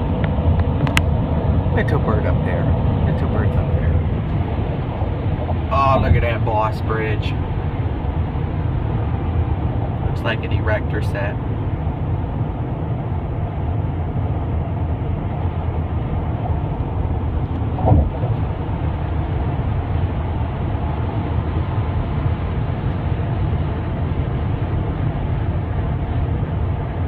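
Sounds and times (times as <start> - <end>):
car road and engine rumble: 0.0 - 27.0
brief thump: 17.8 - 18.4.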